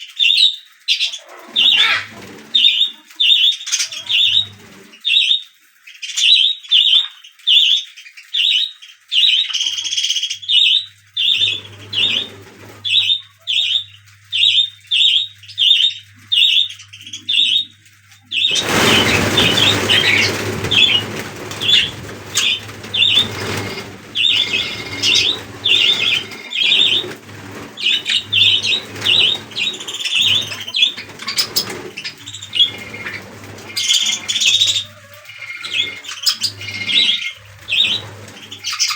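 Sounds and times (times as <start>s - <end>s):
chicks chirping: 0.2s - 5.4s, 8.4s - 38.9s
loud rustling: 18.3s - 38.9s.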